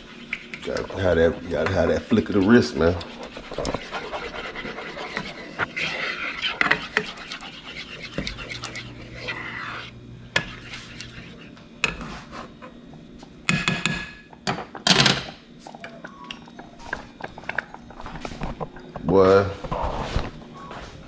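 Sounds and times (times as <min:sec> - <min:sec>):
spoon stirring and scraping pot: 0:00.0 - 0:12.8.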